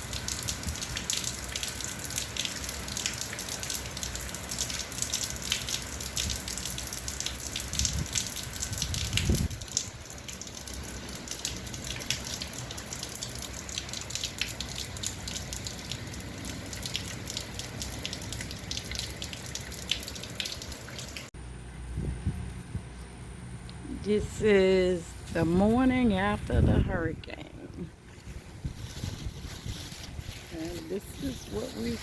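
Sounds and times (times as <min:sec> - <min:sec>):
heavy rain falling and dripping: 0:00.0 - 0:21.3.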